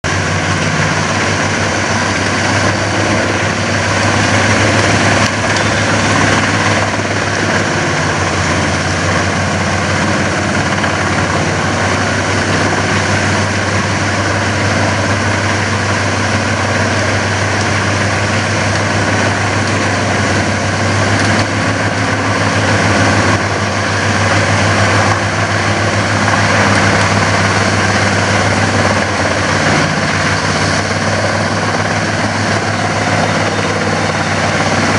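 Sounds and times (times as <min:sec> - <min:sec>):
woodchipper engine drone: 0:00.0 - 0:34.9.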